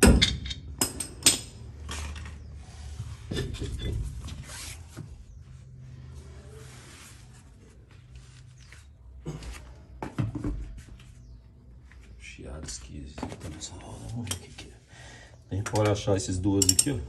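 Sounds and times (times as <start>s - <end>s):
metal clunks from wheel and tools: 0.0s - 2.4s
scraping of wheel and tools: 1.5s - 7.8s.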